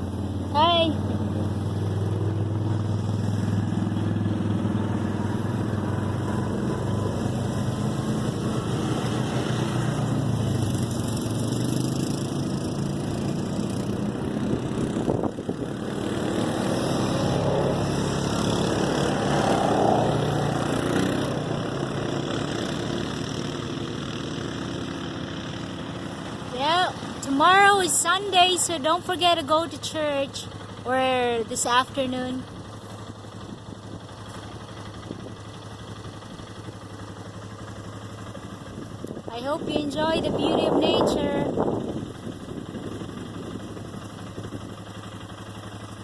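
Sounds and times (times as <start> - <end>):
atv engines running: 0.0 - 46.0.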